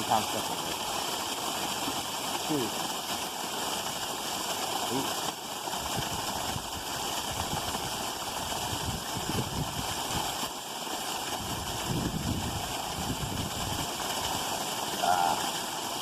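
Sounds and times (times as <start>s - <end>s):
creek water running: 0.0s - 16.0s.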